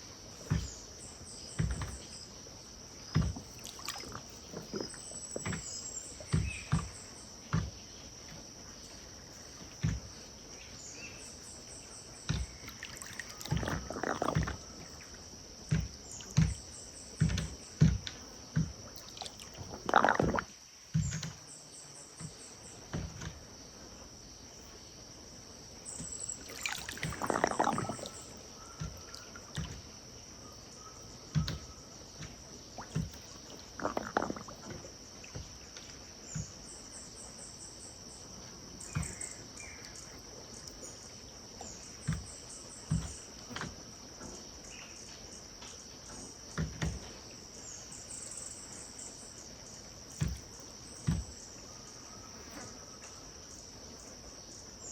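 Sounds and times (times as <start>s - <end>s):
water lapping at riverbank: 0.0s - 54.9s
high insect buzz: 2.8s - 8.1s, 10.6s - 23.6s, 25.8s - 30.6s, 32.2s - 35.7s
large water splashes: 3.2s - 7.0s, 12.3s - 15.1s, 18.8s - 20.6s, 26.0s - 30.0s, 32.5s - 35.6s
pulsed insect chirps: 3.4s - 7.0s, 12.4s - 15.2s, 18.9s - 21.2s, 25.8s - 29.7s, 32.6s - 35.2s.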